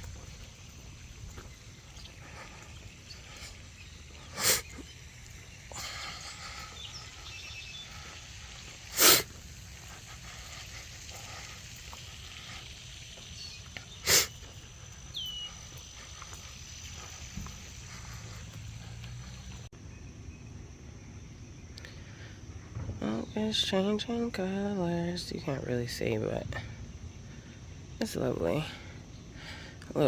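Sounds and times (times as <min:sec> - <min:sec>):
faint outdoor background: 0:00.0 - 0:30.0
breath puffs or sniffs: 0:02.0 - 0:05.0, 0:05.7 - 0:13.2, 0:13.9 - 0:19.7.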